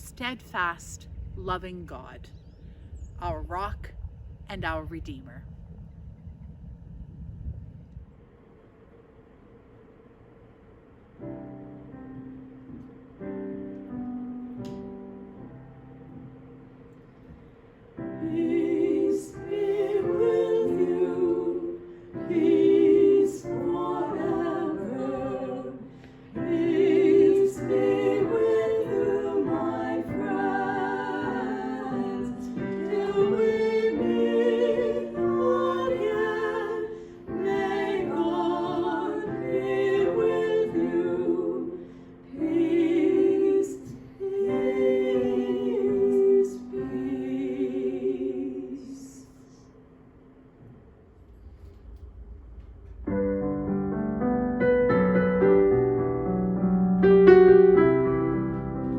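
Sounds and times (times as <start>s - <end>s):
voices singing with vibrato: 18.1s - 49.6s.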